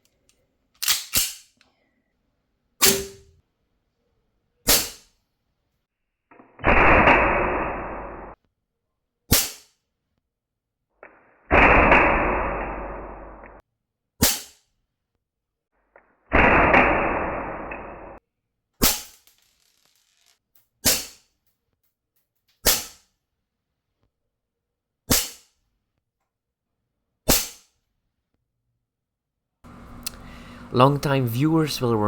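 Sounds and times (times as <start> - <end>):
airgun shots cracking: 2.8 - 3.3.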